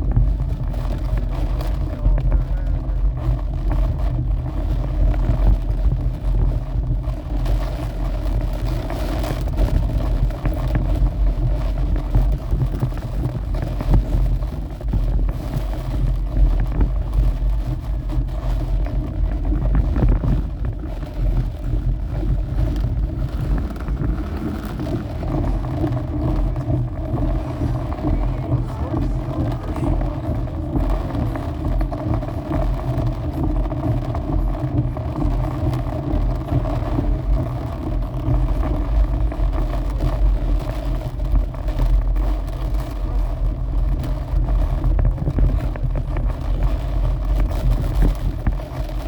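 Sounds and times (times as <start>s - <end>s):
storm wind buffeting microphone: 0.0s - 49.0s
steady hum: 15.4s - 40.0s.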